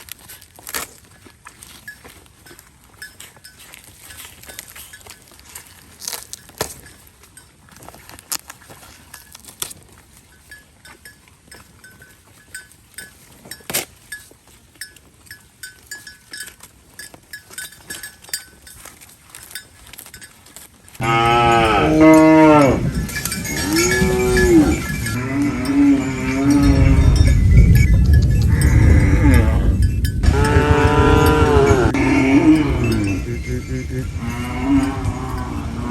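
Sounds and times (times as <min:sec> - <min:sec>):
faint clinks and clicks: 0:00.0 - 0:35.9
light bell-like ringing: 0:10.2 - 0:35.9
cattle mooing: 0:21.0 - 0:35.9.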